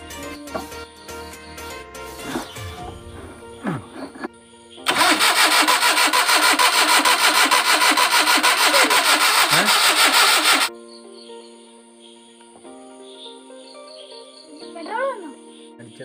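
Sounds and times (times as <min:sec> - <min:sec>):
starter motor cranking engine: 0:04.9 - 0:10.7.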